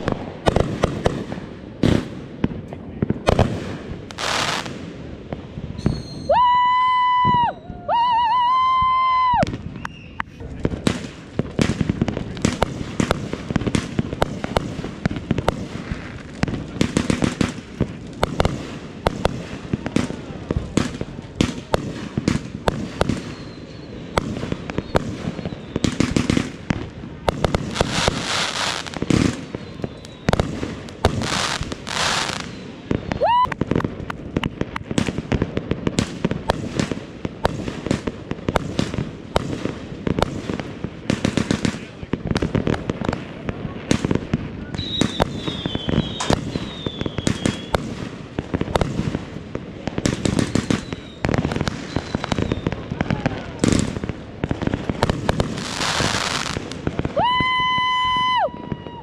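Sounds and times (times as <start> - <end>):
fireworks cracking and banging: 0.0 - 59.0
fireworks hissing bursts: 3.2 - 58.5
firework whistle: 5.7 - 10.4, 22.6 - 26.4, 27.2 - 33.8, 44.6 - 48.0, 50.3 - 53.8, 55.6 - 59.0.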